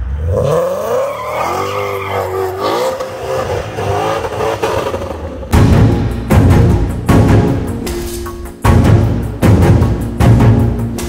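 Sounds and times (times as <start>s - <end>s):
car engine revving hard: 0.0s - 5.5s.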